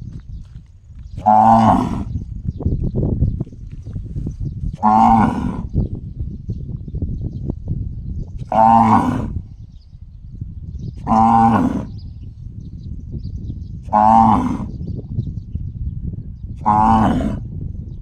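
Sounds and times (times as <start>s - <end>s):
cow calling: 1.2s - 2.1s, 11.0s - 11.9s.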